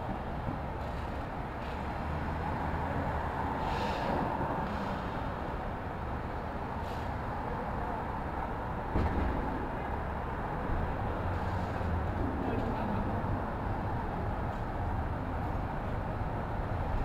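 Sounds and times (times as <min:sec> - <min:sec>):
traffic rumble: 0:00.0 - 0:17.0
clunks and knocks: 0:08.9 - 0:09.6.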